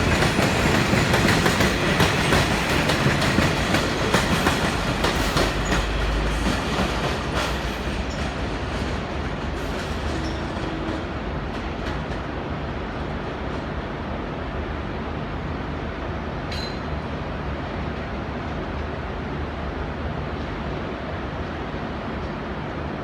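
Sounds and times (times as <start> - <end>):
train wheels clicking over rail joints: 0.0 - 12.5
train rumble: 0.0 - 23.0.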